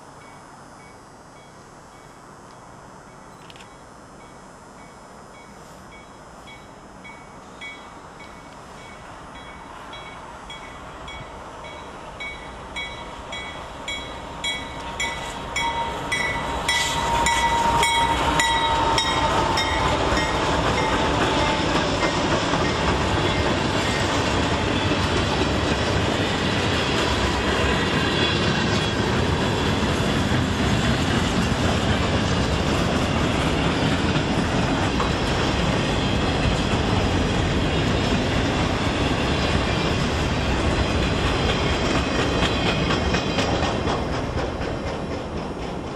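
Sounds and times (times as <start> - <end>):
train bell ringing: 0.1 - 2.2, 3.0 - 25.0
locomotives passing: 6.2 - 45.9
freight cars clattering on rails: 7.7 - 45.9.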